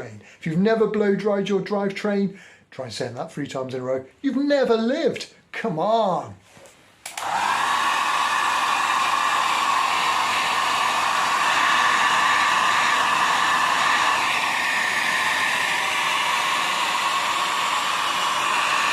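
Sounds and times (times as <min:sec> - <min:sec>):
hair dryer running: 0:07.0 - 0:18.9.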